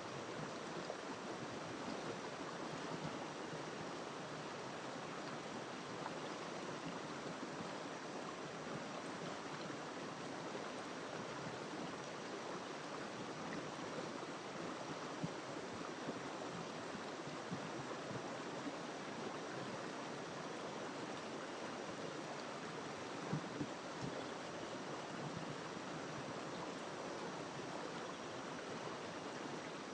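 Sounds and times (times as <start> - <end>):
faint water splashes: 0.0 - 29.9
river water flowing over rocks: 0.0 - 29.9.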